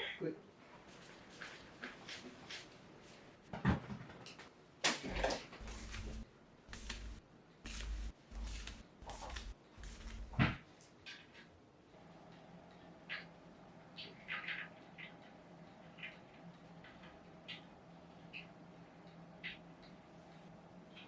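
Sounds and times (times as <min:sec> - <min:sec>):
rustling and rumbling of objects moved: 0:00.6 - 0:17.4.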